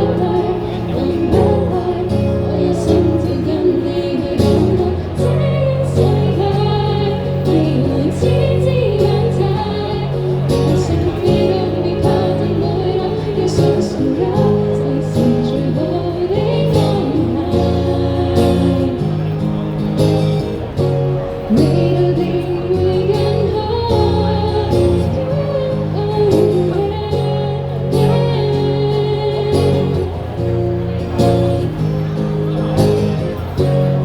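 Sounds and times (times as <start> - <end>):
person singing: 0.0 - 19.2, 21.5 - 30.3
held bass notes: 0.0 - 34.0.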